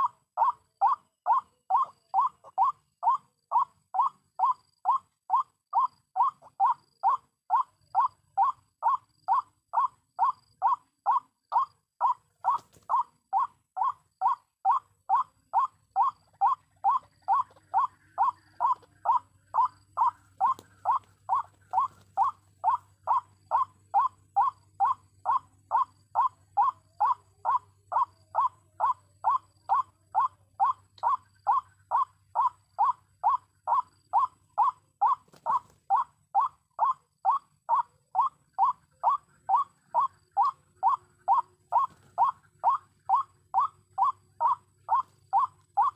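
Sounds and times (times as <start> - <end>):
repeated short croaking bird call: 0.0 - 45.9.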